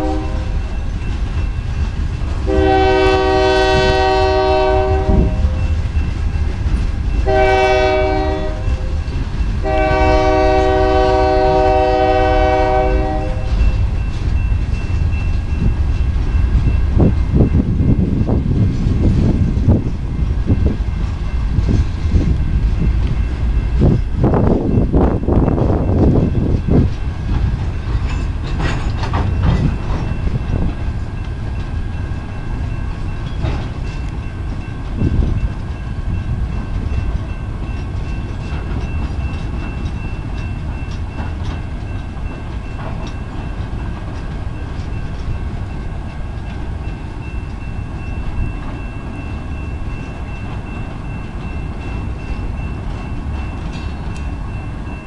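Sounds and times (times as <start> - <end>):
train wheels rumbling on rail: 0.0 - 55.0
clanks and knocks: 27.3 - 30.7, 33.2 - 34.0.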